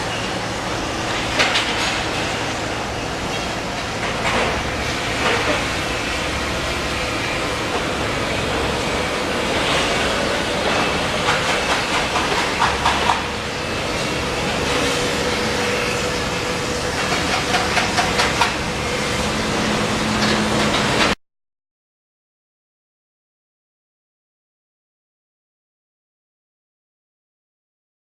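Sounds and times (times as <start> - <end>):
clicks and knocks of train: 0.0 - 21.2
train rumbling past: 0.0 - 21.2.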